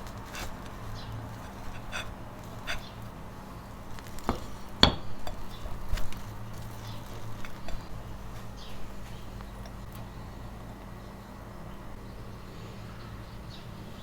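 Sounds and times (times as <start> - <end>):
low steady hum: 0.0 - 14.0
glassware clinking: 4.3 - 5.5.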